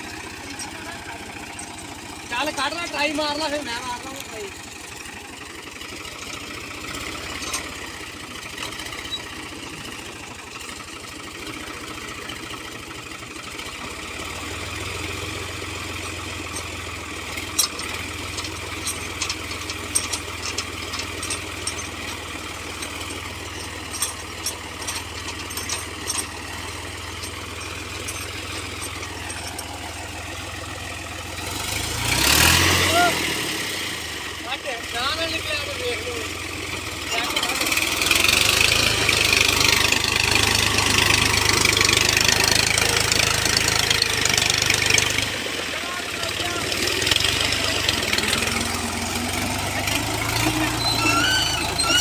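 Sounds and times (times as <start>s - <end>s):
tractor diesel engine running: 0.0s - 52.0s
sharp clicks and knocks: 15.8s - 30.1s.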